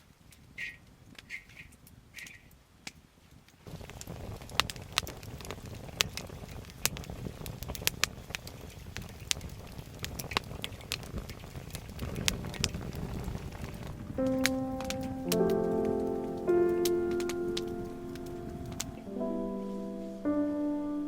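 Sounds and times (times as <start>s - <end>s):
campfire crackling and popping: 2.8s - 19.8s
low steady rumble: 11.8s - 16.6s.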